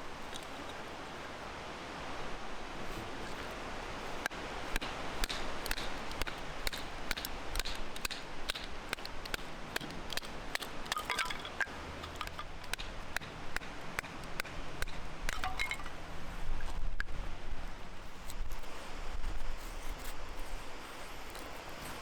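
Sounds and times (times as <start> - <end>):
campfire crackling and popping: 3.2 - 17.2
light metallic clinks: 9.8 - 13.6, 15.3 - 17.1.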